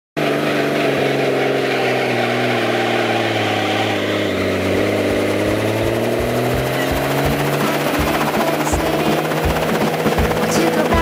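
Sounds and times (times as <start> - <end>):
helicopter engine and rotor: 0.2 - 11.0
low thumps: 4.5 - 10.5.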